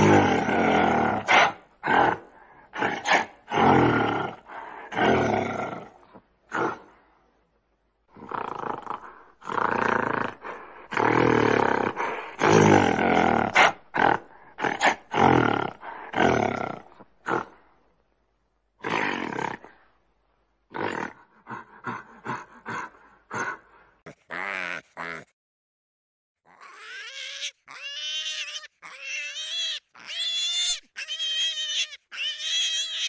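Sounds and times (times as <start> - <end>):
large animal roaring and growling: 0.0 - 6.8
animal grunting: 0.0 - 7.0, 8.1 - 17.7, 20.7 - 25.3.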